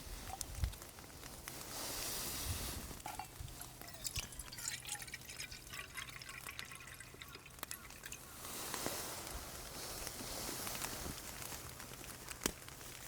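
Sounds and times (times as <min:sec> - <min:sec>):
water pouring: 0:03.0 - 0:08.3.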